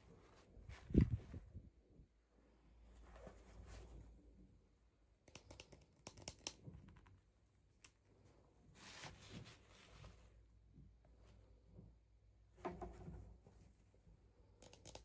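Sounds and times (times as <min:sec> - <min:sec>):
small sharp clicks: 0:05.2 - 0:07.2, 0:14.5 - 0:15.0.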